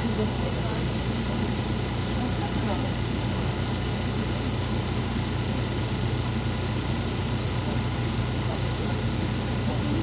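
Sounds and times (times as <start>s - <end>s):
bus diesel engine humming: 0.0s - 10.0s.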